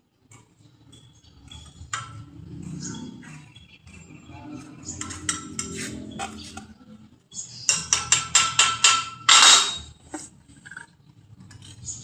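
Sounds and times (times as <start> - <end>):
hammer striking metal: 7.7 - 9.9.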